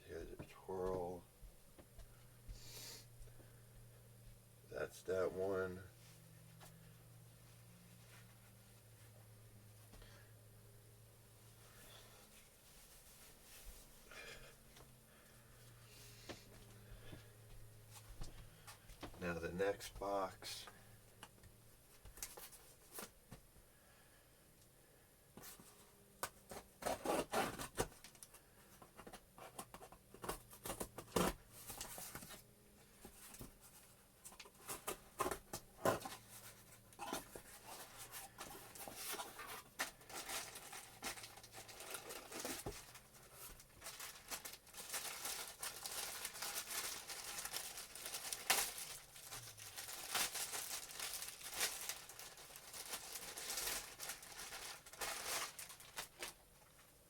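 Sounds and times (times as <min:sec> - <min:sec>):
tape tearing: 0:26.5 - 0:28.1
packaging rustling: 0:34.3 - 0:56.4.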